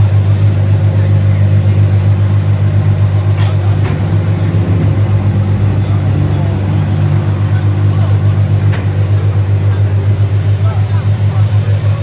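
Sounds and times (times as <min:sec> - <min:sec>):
car engine idling: 0:00.0 - 0:12.0
sharp click: 0:03.4 - 0:04.0.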